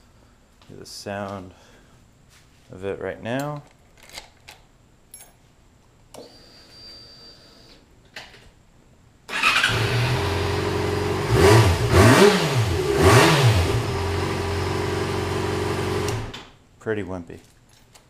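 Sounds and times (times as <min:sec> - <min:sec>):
motorcycle engine revving: 0:09.3 - 0:16.3.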